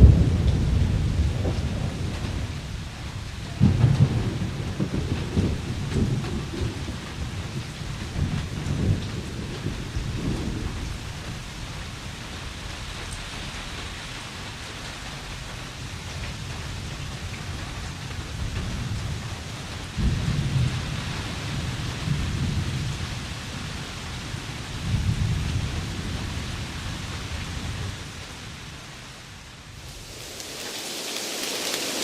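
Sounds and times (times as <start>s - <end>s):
rolling thunder: 0.0s - 11.8s, 19.9s - 28.7s
heavy rain: 0.0s - 32.0s.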